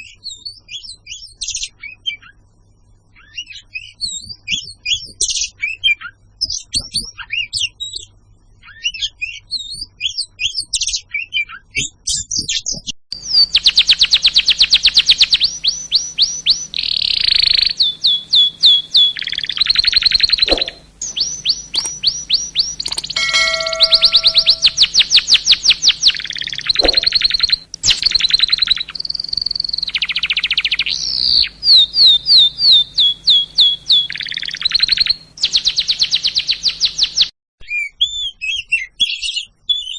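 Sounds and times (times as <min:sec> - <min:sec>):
songbirds chirping and trilling: 0:13.2 - 0:39.9
brief steady tone: 0:22.9 - 0:25.1.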